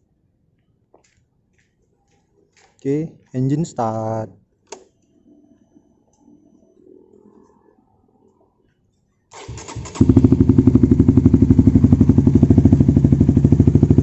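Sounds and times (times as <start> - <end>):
motorcycle engine cranking: 9.3 - 10.8
motorcycle engine idling: 9.4 - 14.0.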